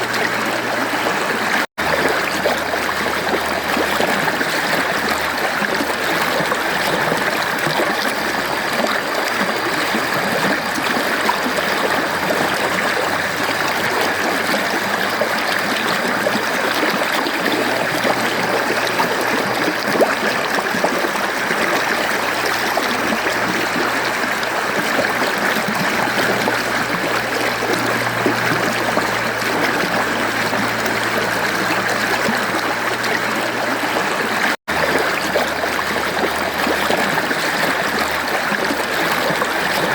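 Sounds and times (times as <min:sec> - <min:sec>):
stream rushing water: 0:00.0 - 0:39.9.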